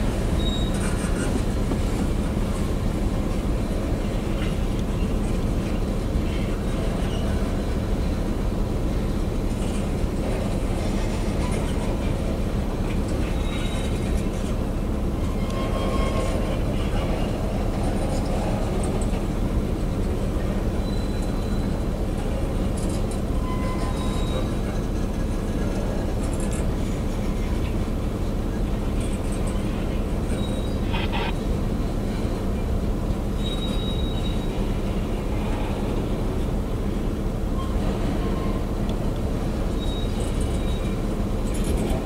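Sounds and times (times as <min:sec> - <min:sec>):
freight train wheels rumbling: 0:00.0 - 0:42.0
wheel squeals: 0:00.3 - 0:01.3, 0:13.3 - 0:14.1, 0:15.2 - 0:16.6, 0:20.8 - 0:21.8, 0:22.9 - 0:24.7, 0:30.3 - 0:31.3, 0:33.4 - 0:34.7, 0:39.6 - 0:42.0.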